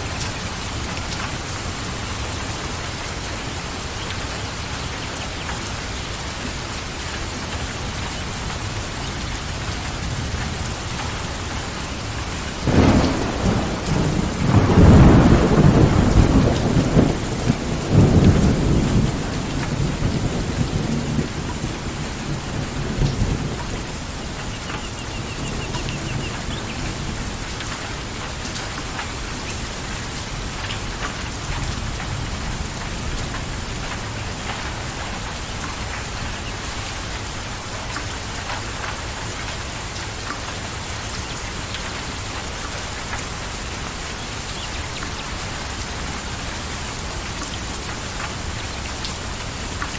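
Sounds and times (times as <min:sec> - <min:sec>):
steady rain falling: 0:00.0 - 0:49.9
thunder rumbling: 0:10.0 - 0:28.5.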